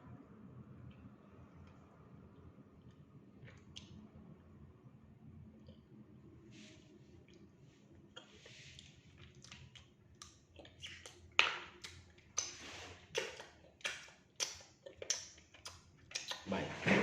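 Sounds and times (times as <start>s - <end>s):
wet mouth smacks while chewing: 8.2s - 16.5s.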